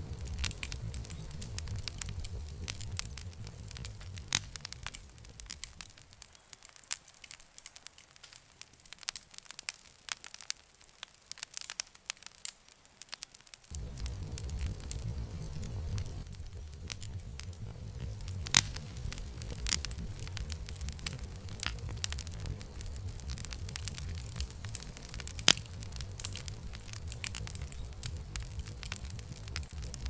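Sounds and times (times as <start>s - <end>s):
low rumble: 0.0s - 6.2s, 13.7s - 30.0s
campfire crackling and popping: 0.0s - 30.0s.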